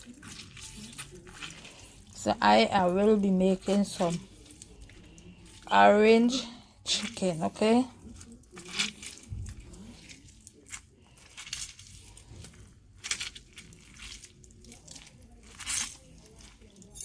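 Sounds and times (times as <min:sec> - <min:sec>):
kitchen items clinking: 0:15.5 - 0:17.0.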